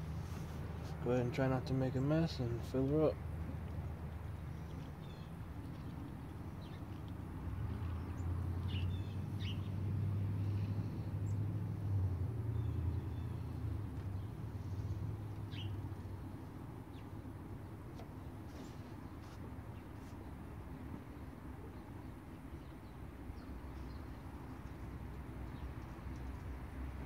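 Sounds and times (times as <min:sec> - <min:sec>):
low engine hum: 0:00.0 - 0:27.0
bird chirps: 0:08.0 - 0:09.8, 0:15.4 - 0:15.8.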